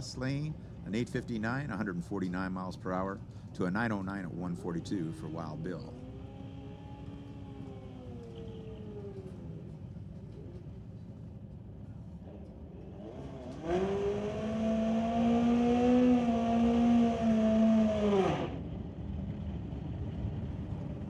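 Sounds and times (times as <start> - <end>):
motorcycle engine revving: 4.2 - 9.8, 12.9 - 18.8.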